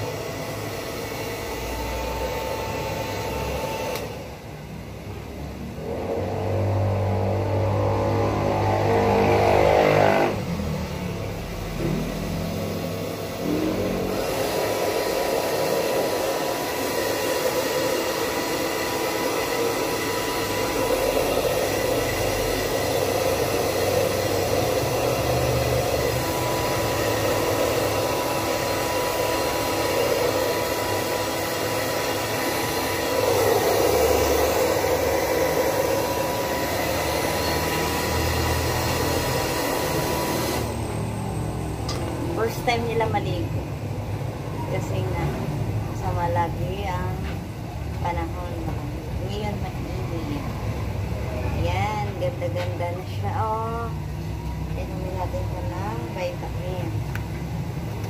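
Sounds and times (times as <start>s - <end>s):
hair dryer whirring: 0.0s - 50.9s.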